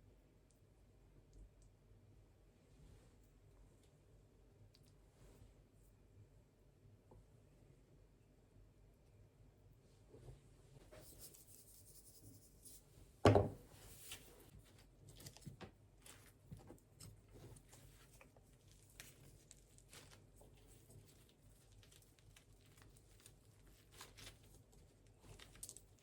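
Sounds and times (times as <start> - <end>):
rustling: 13.7 - 26.0.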